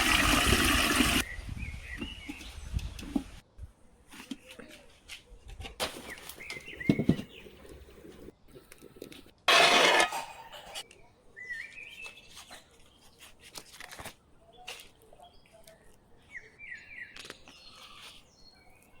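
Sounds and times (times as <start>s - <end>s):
small birds chirping: 10.9s - 13.4s, 14.4s - 19.0s.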